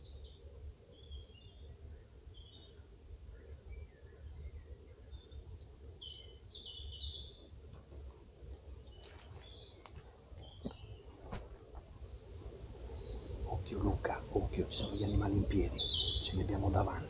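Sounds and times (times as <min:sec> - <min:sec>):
low background rumble: 0:00.0 - 0:17.0
footsteps through dry leaves: 0:09.0 - 0:09.6
small bird chirping: 0:12.0 - 0:17.0.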